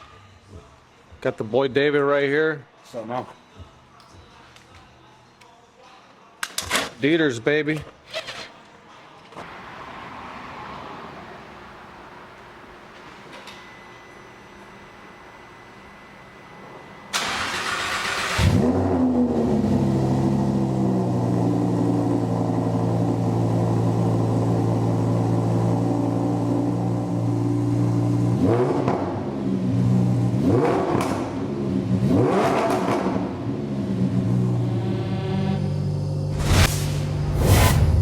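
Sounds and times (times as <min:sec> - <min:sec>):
sports car engine starting: 0:17.1 - 0:38.0
engine revving: 0:17.3 - 0:24.1, 0:27.7 - 0:38.0.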